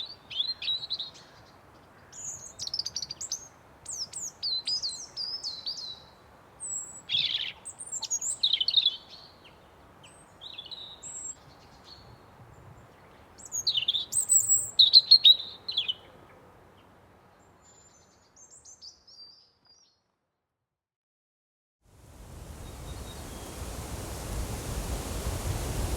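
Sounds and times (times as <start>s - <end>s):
songbirds chirping and trilling: 0.0s - 20.0s
faint outdoor ambience hiss: 0.0s - 20.4s, 21.8s - 25.9s.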